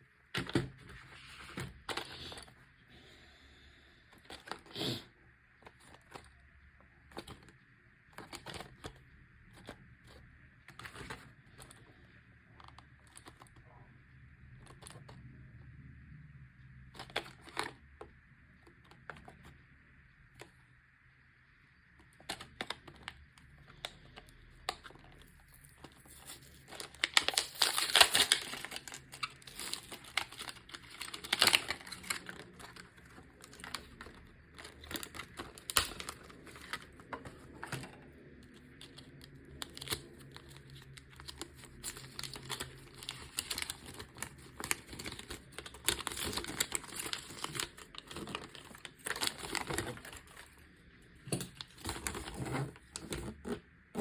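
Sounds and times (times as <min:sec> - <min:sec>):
packaging crinkling and tearing: 0:22.0 - 0:50.7, 0:51.3 - 0:54.0.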